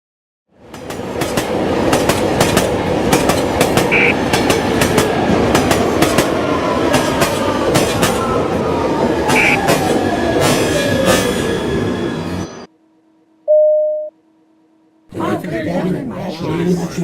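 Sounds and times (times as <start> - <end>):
subway train rumbling: 0.5 - 12.7, 15.1 - 17.0
short high tone: 13.5 - 14.1.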